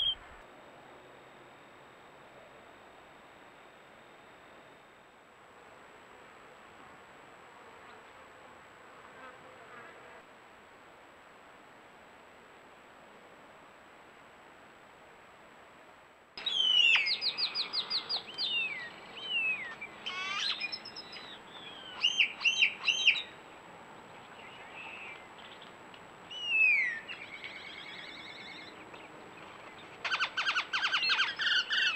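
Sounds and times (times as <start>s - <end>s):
songbirds singing: 0.0s - 0.4s, 16.4s - 23.4s, 24.0s - 31.9s.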